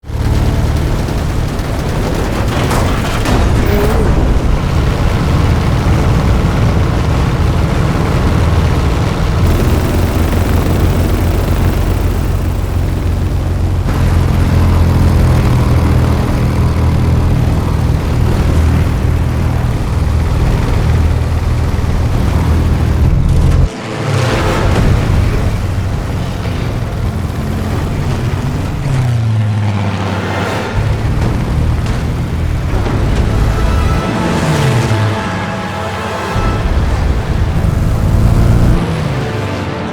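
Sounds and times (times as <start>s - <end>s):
heavy vehicle rumble: 0.0s - 39.9s.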